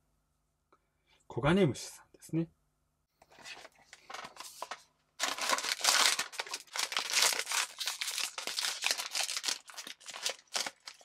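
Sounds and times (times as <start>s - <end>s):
foil bag crinkling: 3.4s - 11.0s.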